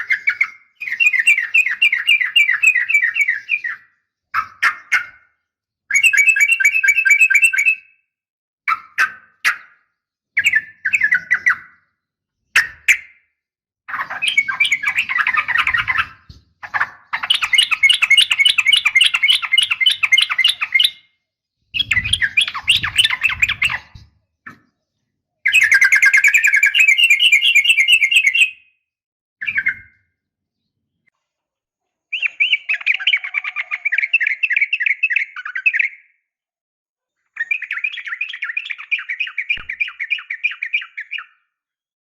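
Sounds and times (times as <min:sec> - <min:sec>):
birds calling and singing: 0:00.0 - 0:08.0, 0:08.7 - 0:13.2, 0:13.9 - 0:28.8, 0:29.4 - 0:31.1, 0:32.1 - 0:36.2, 0:37.2 - 0:41.6
rapid rolling bird trills: 0:21.7 - 0:24.0.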